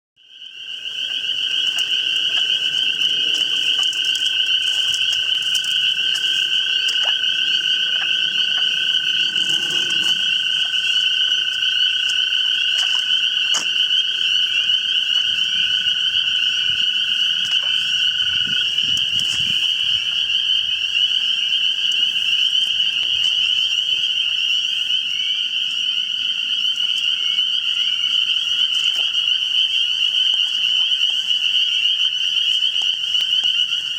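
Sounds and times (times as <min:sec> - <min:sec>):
spring peepers calling: 0:00.2 - 0:33.9.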